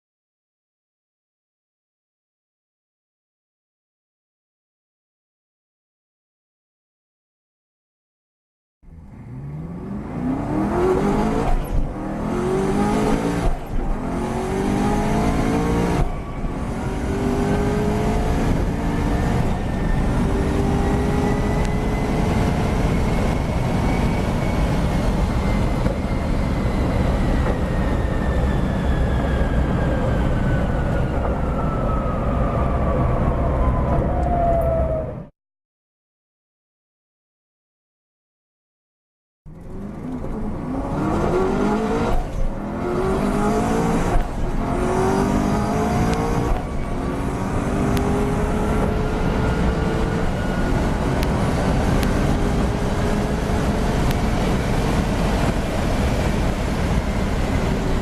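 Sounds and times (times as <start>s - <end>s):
car engine revving at full throttle: 8.9s - 31.0s, 39.5s - 58.0s
high engine whine: 8.9s - 35.3s, 39.5s - 58.0s.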